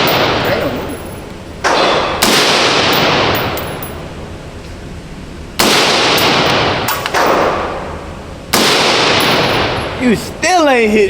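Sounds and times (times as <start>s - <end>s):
pistol shots echoing indoors: 0.0s - 1.0s, 1.6s - 4.0s, 5.6s - 10.0s.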